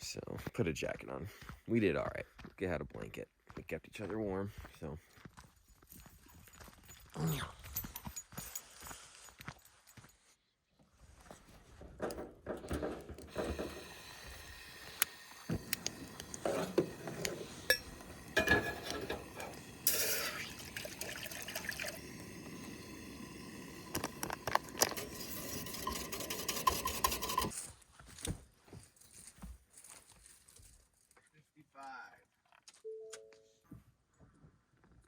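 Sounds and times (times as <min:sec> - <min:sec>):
dishes clinking and knocking: 0:12.0 - 0:27.5
liquid poured into a cup: 0:13.3 - 0:27.5.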